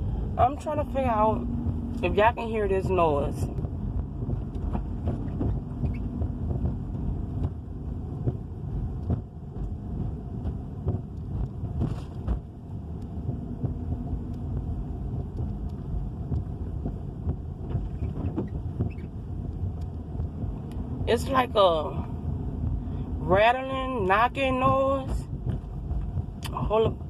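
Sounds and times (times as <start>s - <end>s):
car engine rumbling: 0.0s - 27.0s
light knocks and rattles: 3.6s - 12.5s, 14.4s - 20.5s.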